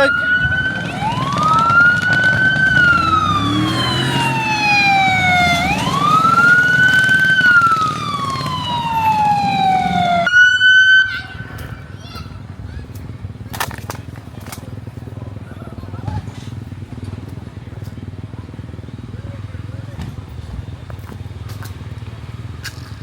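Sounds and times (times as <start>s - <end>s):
emergency vehicle siren wailing: 0.0s - 11.8s
outdoor noise: 0.0s - 23.0s.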